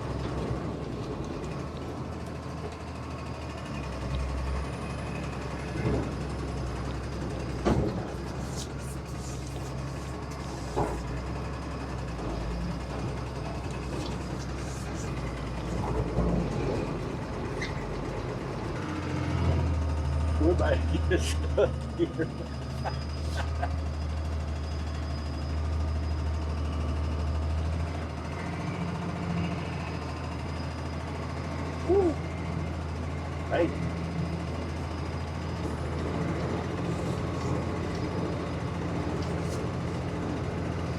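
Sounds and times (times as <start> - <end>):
heavy truck engine drone: 0.0 - 40.9.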